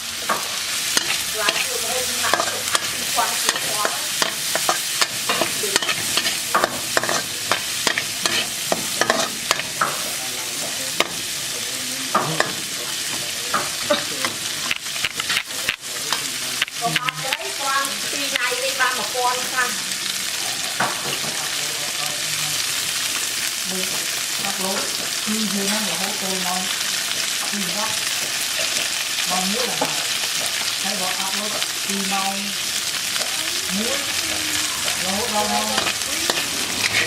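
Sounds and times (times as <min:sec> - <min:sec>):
food sizzling in hot oil: 0:00.0 - 0:37.0
utensil scraping a pan: 0:00.2 - 0:10.1, 0:33.9 - 0:37.0.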